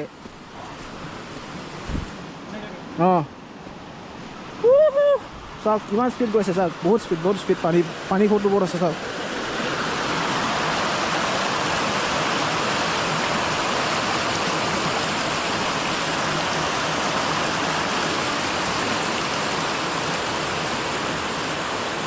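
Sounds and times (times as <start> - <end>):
stream rushing: 0.0 - 22.0.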